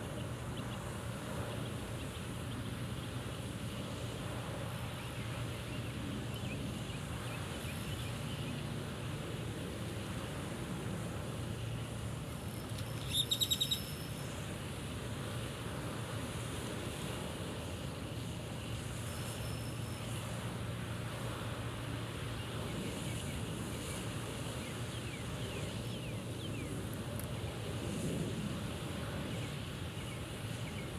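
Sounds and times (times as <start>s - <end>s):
high bird chirps: 13.0s - 14.0s
faint bird whistles: 13.0s - 14.1s.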